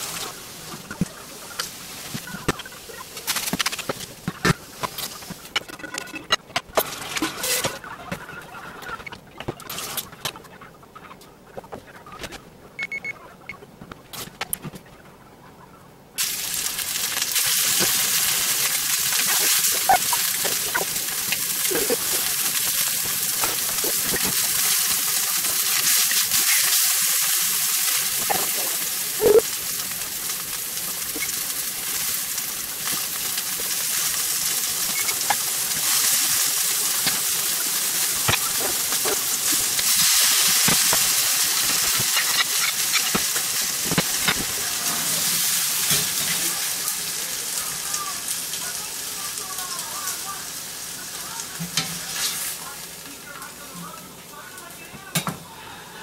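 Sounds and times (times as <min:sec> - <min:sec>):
fish searing in a skillet: 0:16.2 - 0:53.2.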